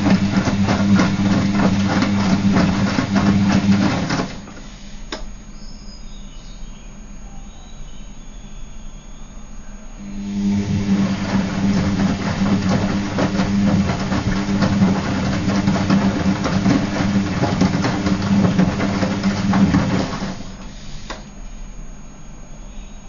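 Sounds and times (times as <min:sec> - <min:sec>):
wet laundry tumbling knocks: 0:00.0 - 0:04.6, 0:10.3 - 0:20.7
washing machine motor hum: 0:00.0 - 0:05.5, 0:10.0 - 0:22.6.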